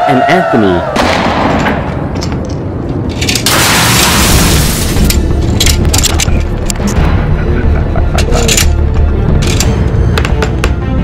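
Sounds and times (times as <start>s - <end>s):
background music with deep bass: 4.2s - 11.0s.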